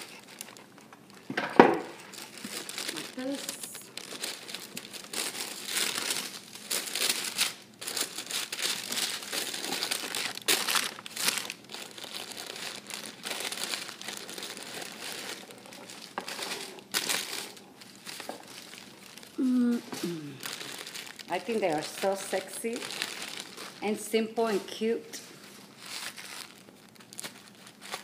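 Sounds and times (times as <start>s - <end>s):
paper wrapping crinkling: 0.0s - 1.3s, 1.9s - 28.0s.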